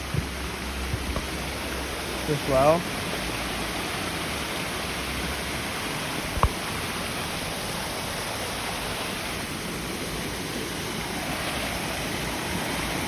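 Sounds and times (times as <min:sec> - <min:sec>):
low thump: 0:00.0 - 0:01.4
waterfall rushing: 0:00.0 - 0:13.0.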